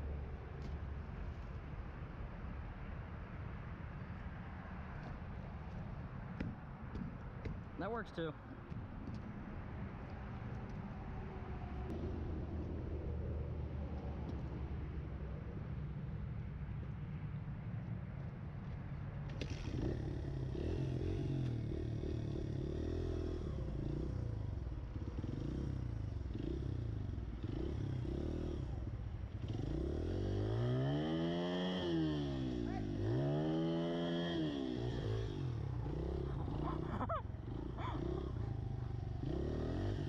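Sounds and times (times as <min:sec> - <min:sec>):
motorbike engine revving: 0:19.4 - 0:40.0.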